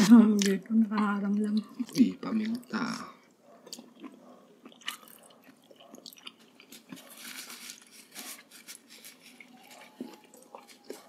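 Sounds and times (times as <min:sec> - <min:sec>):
people chewing: 0:00.0 - 0:11.0
soft rustling: 0:07.0 - 0:11.0.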